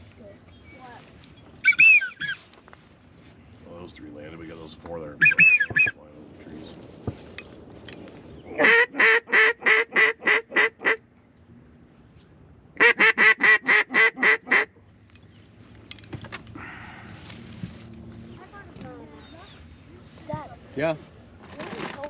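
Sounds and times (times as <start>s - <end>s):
duck call quacks: 5.2s - 5.9s, 8.6s - 11.0s, 12.8s - 14.7s.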